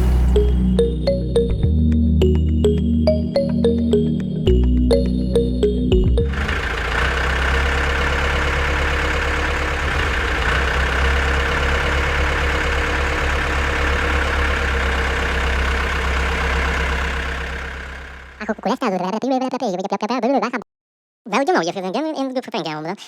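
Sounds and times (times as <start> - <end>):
small tractor engine idling: 6.2 - 18.5.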